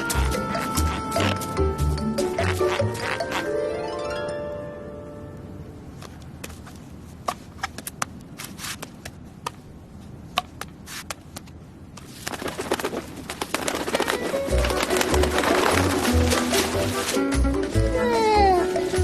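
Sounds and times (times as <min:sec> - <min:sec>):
rustling: 0:10.7 - 0:18.0.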